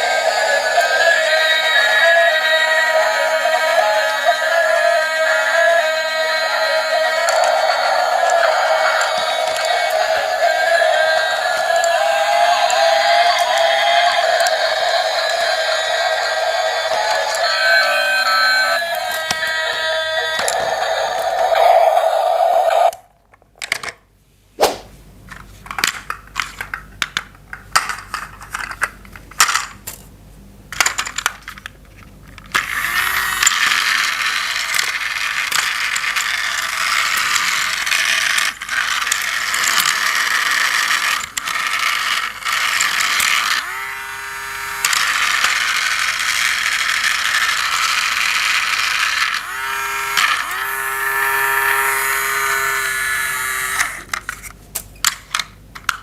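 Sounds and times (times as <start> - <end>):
toy train motor whirring: 0.0 - 23.0, 32.4 - 54.5
plastic toy parts clicking: 7.2 - 15.9, 25.3 - 30.0, 30.7 - 56.0.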